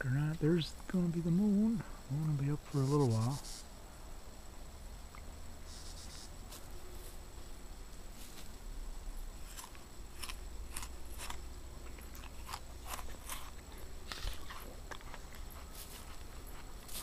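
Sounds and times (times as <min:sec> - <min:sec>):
apple being bitten and chewed: 0:09.4 - 0:17.0.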